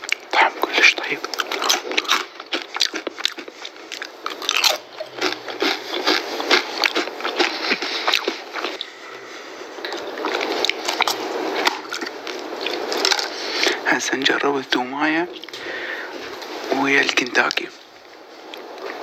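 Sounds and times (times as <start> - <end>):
person crunching food: 0.0 - 13.8.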